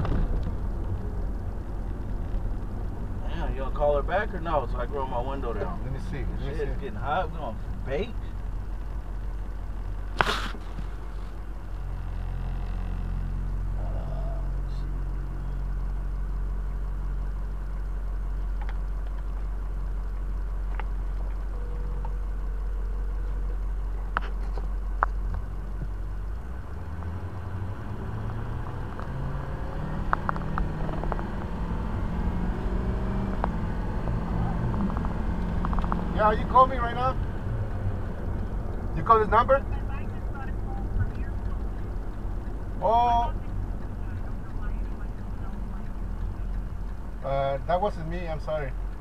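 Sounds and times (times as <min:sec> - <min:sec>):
road rumble: 0:00.0 - 0:49.0
vehicle engine running: 0:00.0 - 0:49.0
faint clicks: 0:17.7 - 0:31.6, 0:33.3 - 0:49.0.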